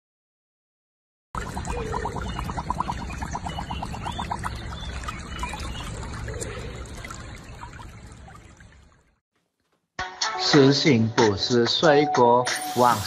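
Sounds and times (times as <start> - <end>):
water trickling and sloshing: 1.4 - 9.2.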